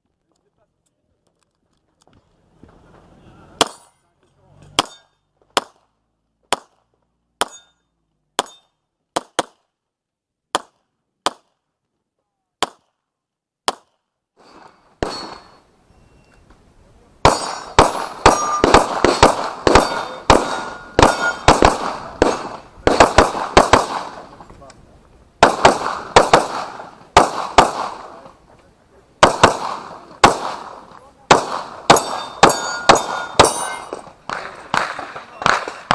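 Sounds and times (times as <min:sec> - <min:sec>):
metallic ring: 0:07.5 - 0:08.7, 0:14.4 - 0:16.4, 0:18.3 - 0:18.6, 0:32.0 - 0:34.0
handgun shots: 0:17.3 - 0:24.2.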